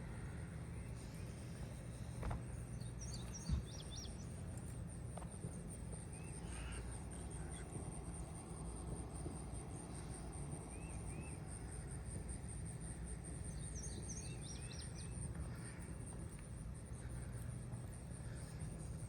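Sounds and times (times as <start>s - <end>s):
insect trill: 0.0s - 19.0s
bird chirps: 2.7s - 4.4s, 13.5s - 15.2s.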